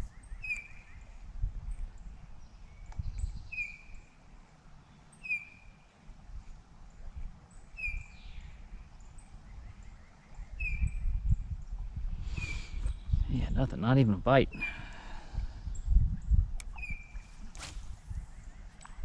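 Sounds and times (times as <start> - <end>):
bird whistled call: 0.0 - 1.0, 3.5 - 4.0, 5.2 - 5.6, 7.8 - 8.4, 10.6 - 11.1, 16.8 - 17.3
wind rumbling on microphone: 0.0 - 4.1, 6.1 - 19.0.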